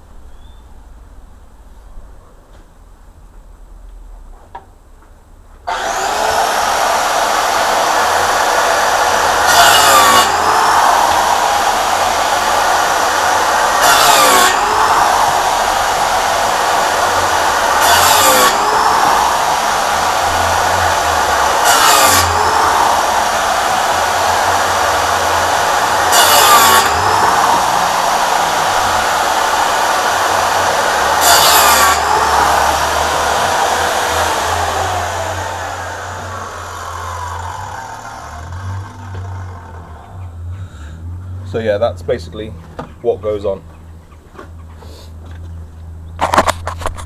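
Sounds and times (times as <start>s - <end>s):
electric saw cutting wood: 5.7s - 40.2s.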